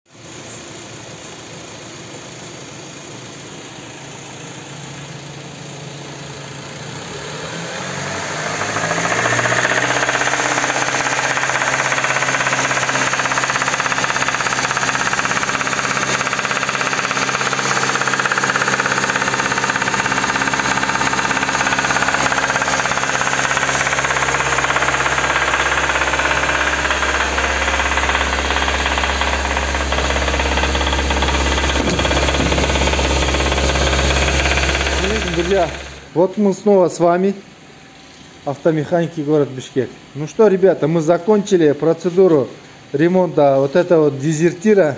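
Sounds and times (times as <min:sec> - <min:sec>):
car engine knocking: 0:08.0 - 0:36.1.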